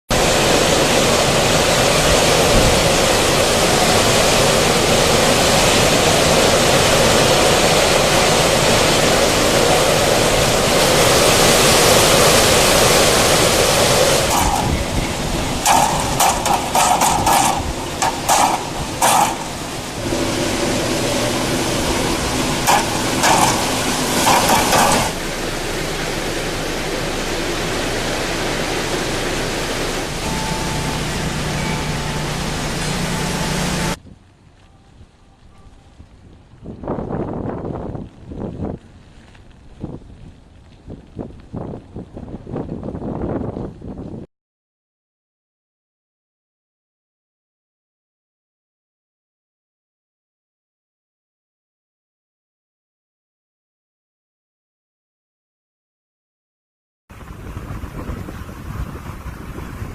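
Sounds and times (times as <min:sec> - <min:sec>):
wind and rain rushing: 0:00.1 - 0:44.3, 0:57.1 - 0:59.9.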